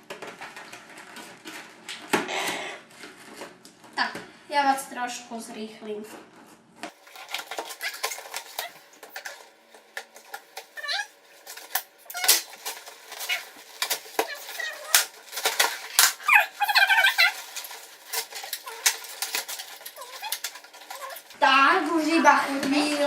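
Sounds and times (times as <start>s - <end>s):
packaging clicking and rustling: 0.0s - 2.3s, 6.9s - 21.4s
squeaky sped-up voice: 16.2s - 17.4s.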